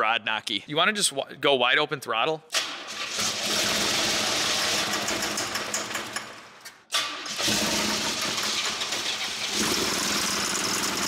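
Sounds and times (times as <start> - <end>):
car engine running rough with knock: 9.6 - 11.0.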